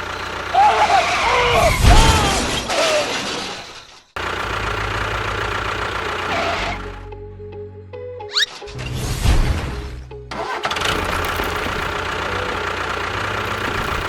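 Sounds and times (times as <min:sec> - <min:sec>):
engine running: 0:00.0 - 0:02.7, 0:04.2 - 0:08.8, 0:09.5 - 0:14.0
loud crash: 0:01.4 - 0:04.1, 0:08.7 - 0:11.0.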